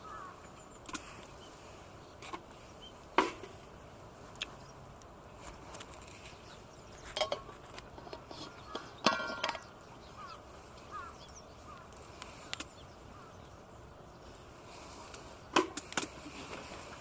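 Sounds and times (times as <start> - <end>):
camping gear knocking and clinking: 7.0 - 9.7
faint bird chirps: 8.3 - 14.4.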